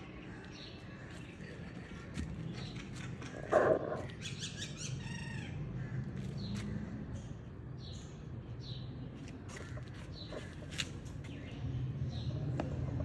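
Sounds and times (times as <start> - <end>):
birds calling: 0.0 - 6.9, 9.2 - 11.6.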